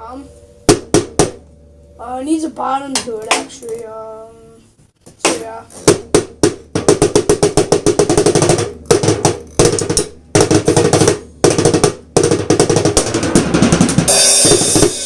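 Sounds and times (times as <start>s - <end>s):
rapid tom drum strokes: 0.4s - 1.5s, 5.1s - 15.0s
deeper drum strokes: 5.1s - 15.0s.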